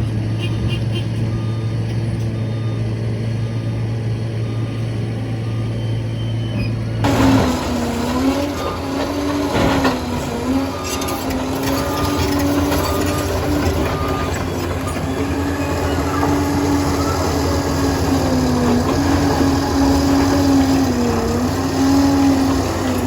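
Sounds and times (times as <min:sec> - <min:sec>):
dozer diesel engine: 0:00.0 - 0:23.0.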